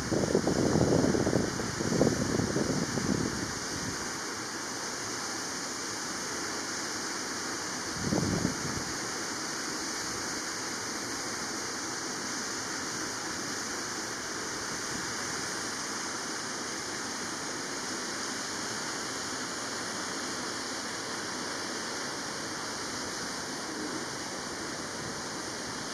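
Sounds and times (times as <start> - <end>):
steady rushing noise: 12.3 - 25.9.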